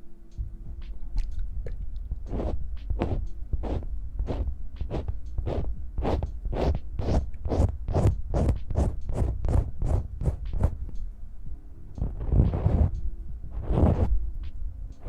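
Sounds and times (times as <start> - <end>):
hands brushing near microphone: 2.3 - 7.2, 13.6 - 14.2.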